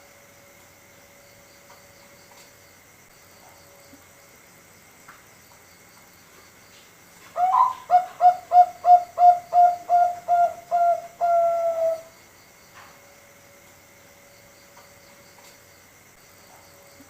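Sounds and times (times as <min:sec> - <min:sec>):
dove cooing song: 0:07.4 - 0:12.1.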